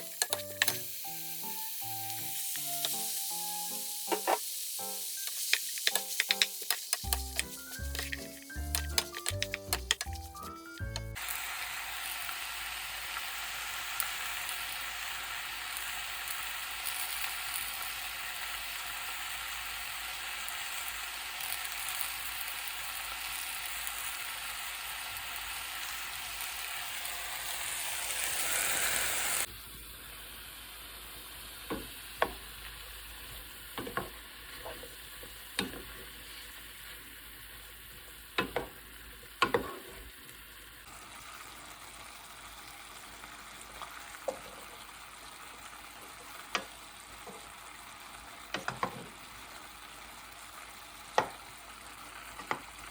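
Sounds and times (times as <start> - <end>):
utensils tapping on a pan: 0.0 - 0.9, 2.6 - 3.1, 4.1 - 4.4, 5.2 - 11.2, 35.6 - 35.9, 38.4 - 38.7, 39.4 - 39.8
food sizzling in a pan: 0.0 - 52.9.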